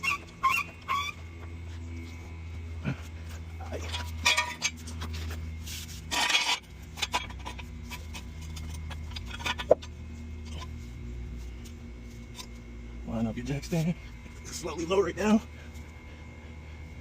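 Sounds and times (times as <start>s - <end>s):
low steady hum: 0.0s - 17.0s
metal clinks and scrapes: 3.6s - 11.6s.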